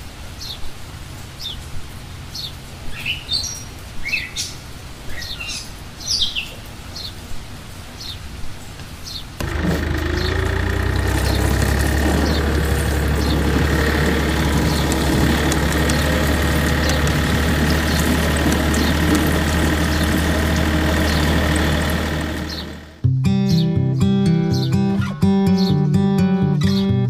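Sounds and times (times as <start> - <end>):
small motor humming: 9.4 - 23.0
strummed acoustic guitar music: 9.4 - 27.0.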